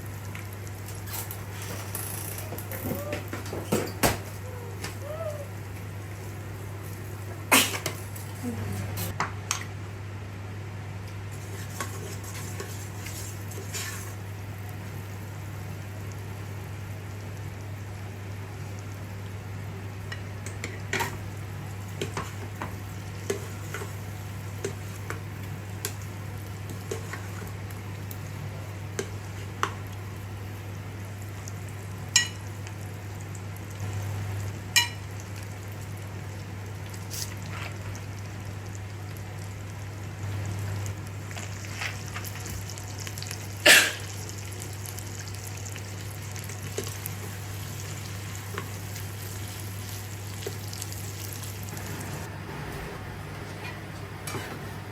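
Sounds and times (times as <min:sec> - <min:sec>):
food sizzling in a pan: 0:00.0 - 0:08.6, 0:11.3 - 0:52.3.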